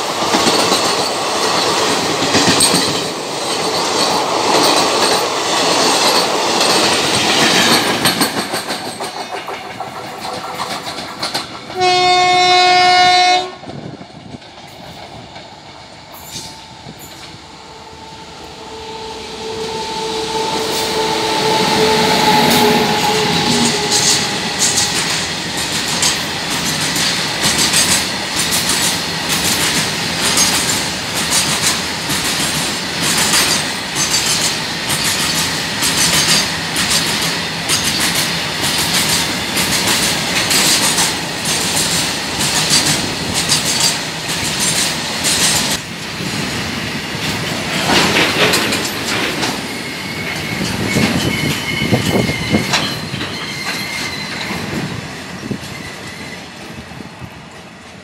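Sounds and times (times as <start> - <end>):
train wheels clattering over rail joints: 0.0 - 12.6, 22.5 - 58.0
high wheel squeal: 16.2 - 25.8, 49.4 - 54.8.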